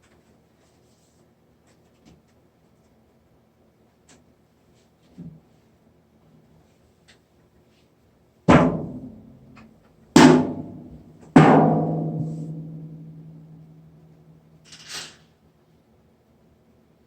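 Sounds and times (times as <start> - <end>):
steady low hum: 8.2 - 14.6.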